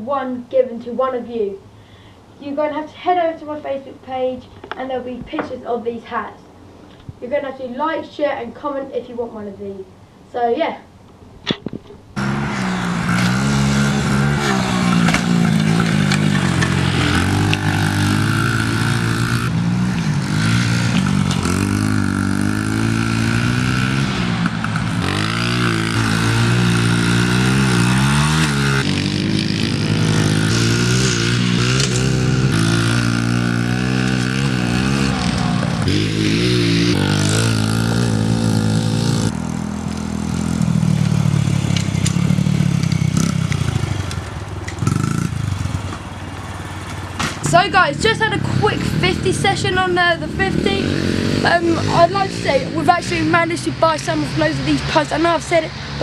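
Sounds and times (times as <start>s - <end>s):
pit bike engine revving: 12.2s - 56.0s.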